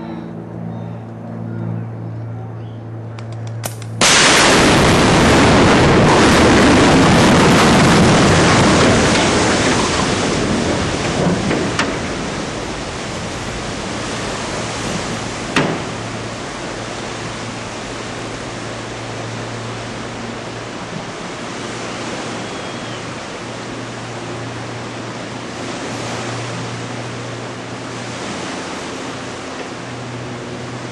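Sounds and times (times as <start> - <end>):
low hum: 0.0 - 30.9
sharp cracks: 3.2 - 10.0
explosion blast rumbling: 4.0 - 14.0.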